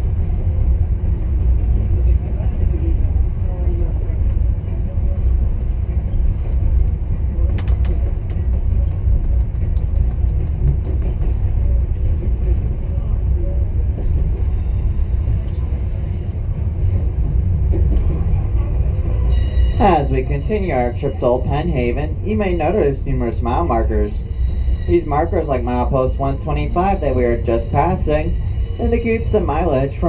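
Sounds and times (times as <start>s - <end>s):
train rolling on rails: 0.0s - 30.0s
high wheel squeal: 14.5s - 16.6s, 19.2s - 21.0s, 24.2s - 30.0s.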